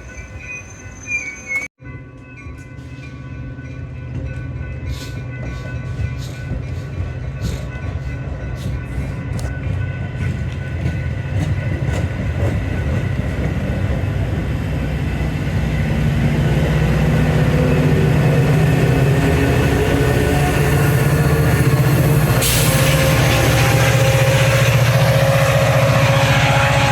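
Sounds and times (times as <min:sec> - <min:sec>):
deep train engine hum: 0:00.0 - 0:26.9
train wheels clicking over rail joints: 0:04.1 - 0:14.5.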